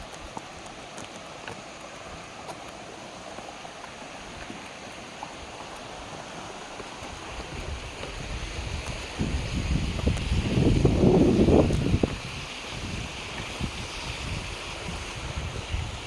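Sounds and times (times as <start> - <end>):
stream running over rocks: 0.0 - 16.0
wind rumble on microphone: 7.0 - 16.0.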